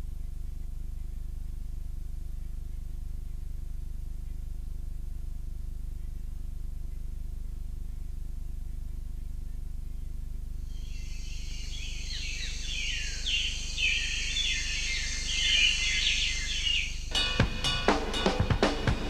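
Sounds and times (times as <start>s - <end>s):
steady low hum: 0.0s - 19.0s
birds chirping: 10.7s - 19.0s
drum beat: 17.1s - 19.0s.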